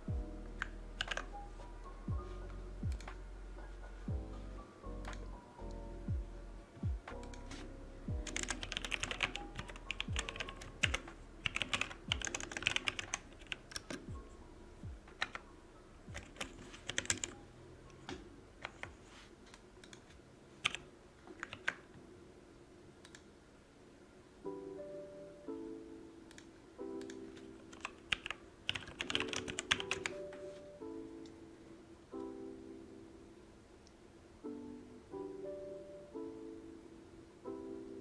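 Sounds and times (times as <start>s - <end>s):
background music with low beat: 0.0s - 18.3s
computer keyboard typing: 0.6s - 1.3s, 8.2s - 14.1s, 15.1s - 15.4s, 16.1s - 17.4s, 18.0s - 21.9s, 26.3s - 30.2s.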